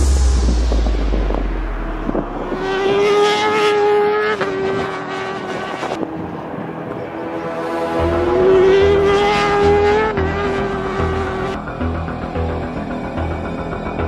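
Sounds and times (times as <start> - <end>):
bass-heavy music: 0.0 - 4.3, 7.6 - 14.0
racing motorcycle engine revving: 0.0 - 14.0.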